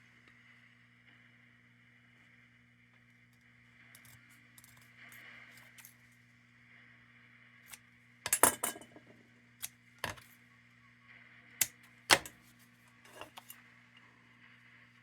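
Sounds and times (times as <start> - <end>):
faint steady hum: 0.0 - 15.0
sheet metal parts clacking: 8.3 - 9.0, 10.0 - 10.2, 12.1 - 12.3, 13.1 - 13.5.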